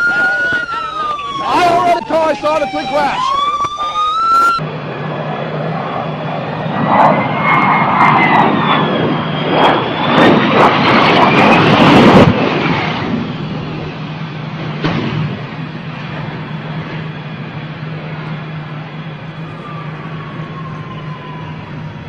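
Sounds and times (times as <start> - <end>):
aircraft engine whine: 0.0 - 22.0
engine low hum: 11.9 - 22.0.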